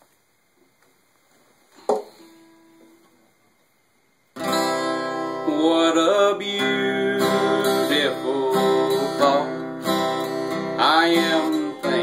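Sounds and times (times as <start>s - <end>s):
acoustic guitar strumming chords: 4.4s - 12.0s.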